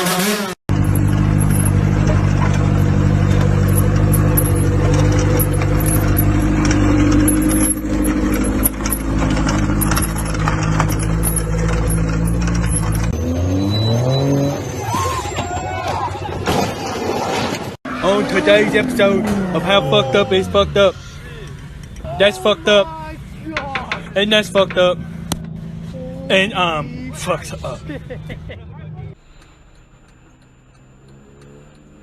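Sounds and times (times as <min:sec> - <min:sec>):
rattling and clicking: 0:00.7 - 0:13.2
vehicle engine running: 0:00.7 - 0:13.9, 0:18.4 - 0:28.4.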